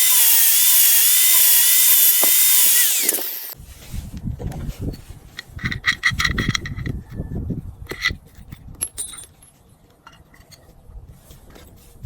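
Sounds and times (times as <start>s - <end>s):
small metal parts clinking: 0.0s - 3.6s, 7.9s - 10.6s.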